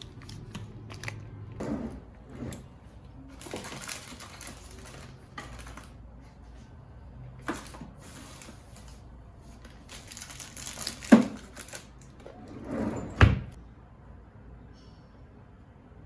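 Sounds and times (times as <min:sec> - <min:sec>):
rustling and crinkling: 0:00.0 - 0:06.8, 0:07.4 - 0:12.4.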